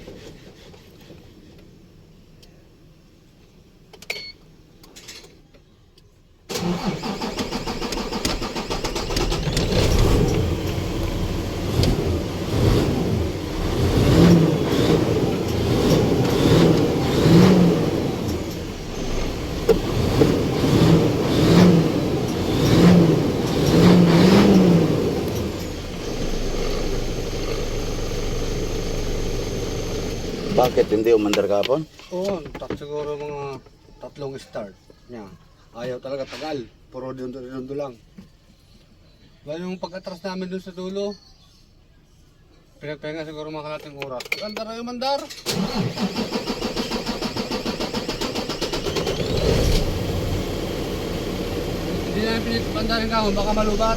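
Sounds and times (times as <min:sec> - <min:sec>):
diesel engine cranking and revving: 0:06.5 - 0:31.5, 0:45.4 - 0:53.9.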